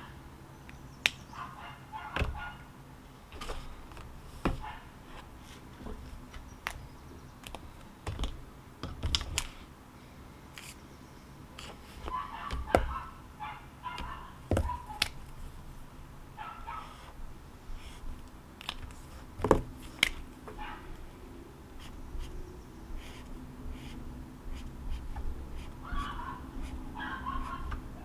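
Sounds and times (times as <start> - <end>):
faint animal calls: 12.0 - 15.1, 25.6 - 28.0.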